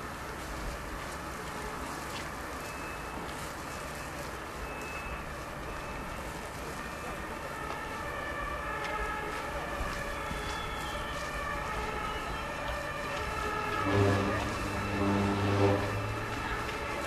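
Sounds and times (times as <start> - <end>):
railcar low rumble: 0.0 - 17.0
steady whining tones: 10.4 - 17.0.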